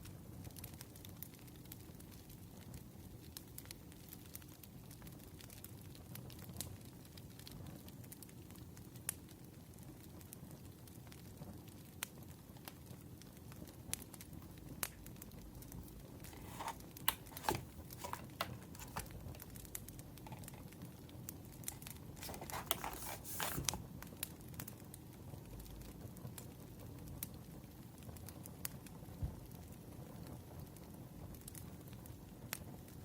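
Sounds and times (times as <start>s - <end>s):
wood fire crackling: 0.8s - 25.3s
paper rustling and crinkling: 15.6s - 19.5s, 20.2s - 20.6s, 21.6s - 23.9s.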